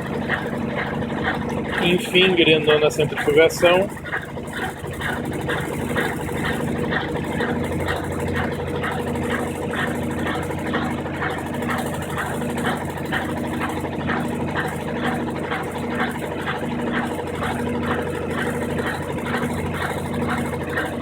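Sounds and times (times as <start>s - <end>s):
washing machine drain pump pulsing: 0.0s - 21.0s.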